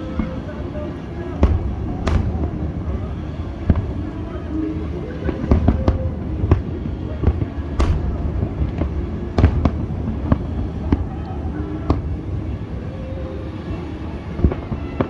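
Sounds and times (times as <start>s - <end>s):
fireworks bangs: 0.0s - 15.0s
low rumble: 1.4s - 4.9s, 7.8s - 12.2s.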